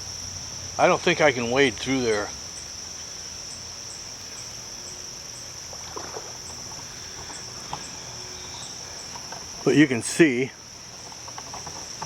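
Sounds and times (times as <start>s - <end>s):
high-pitched insect chorus: 0.0s - 12.0s
soft clicks and rustles: 10.9s - 12.0s.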